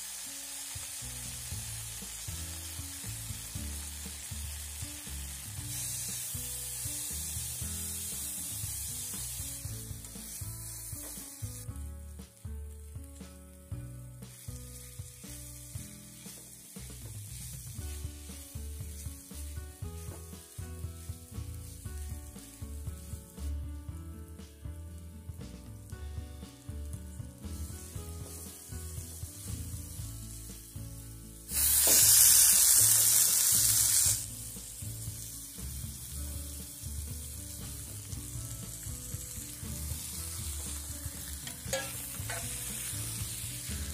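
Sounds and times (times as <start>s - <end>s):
loud burst of sizzling: 0.0s - 12.4s, 14.2s - 23.6s, 27.4s - 43.9s
food sizzling in hot oil: 0.0s - 23.6s, 24.3s - 43.9s.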